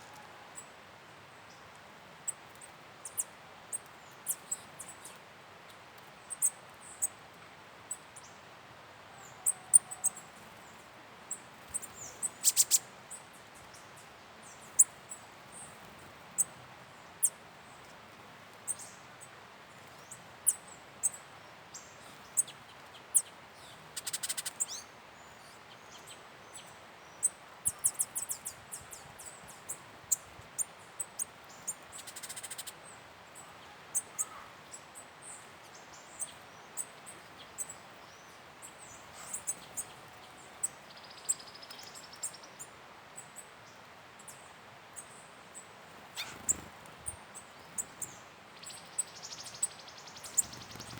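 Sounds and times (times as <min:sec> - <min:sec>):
small birds chirping: 0:01.4 - 0:07.2, 0:09.2 - 0:50.9
bird chattering: 0:46.2 - 0:46.6.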